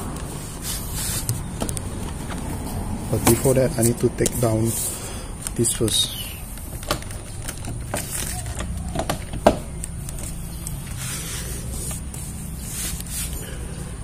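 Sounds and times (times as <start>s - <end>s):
plastic trim clicks and knocks: 6.6s - 10.0s.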